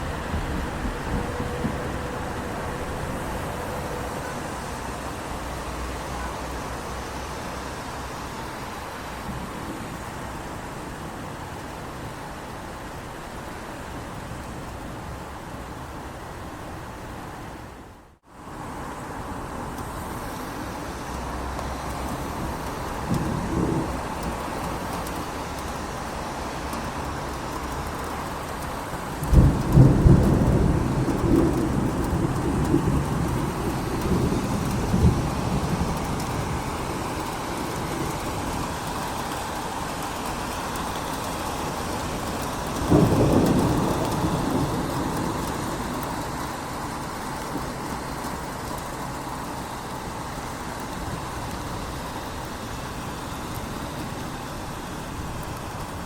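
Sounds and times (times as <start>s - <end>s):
thunder rolling: 0.0s - 4.4s, 22.3s - 25.4s, 29.1s - 39.0s, 42.0s - 48.5s
steady rain: 0.0s - 56.0s.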